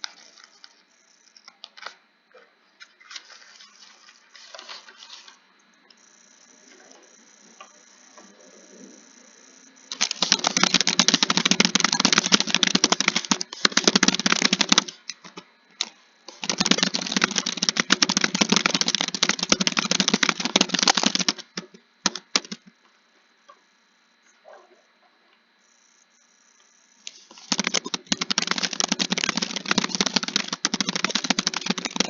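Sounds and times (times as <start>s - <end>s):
fast typing on keyboard: 9.9s - 22.7s, 27.1s - 32.0s.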